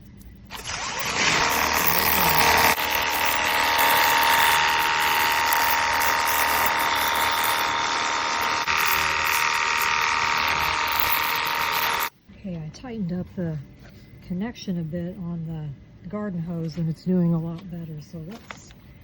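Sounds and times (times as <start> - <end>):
electric pump whining: 0.0 - 12.1.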